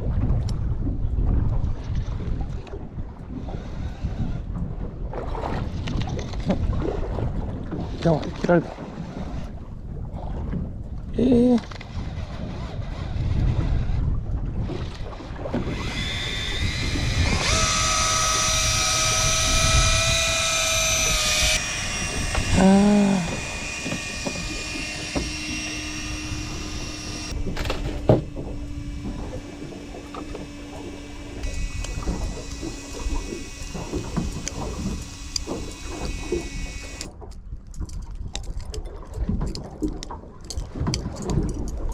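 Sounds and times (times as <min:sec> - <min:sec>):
wind: 0:00.0 - 0:41.9
fishing reel motor whining: 0:03.4 - 0:04.5, 0:15.1 - 0:37.1
water noise: 0:14.7 - 0:37.1.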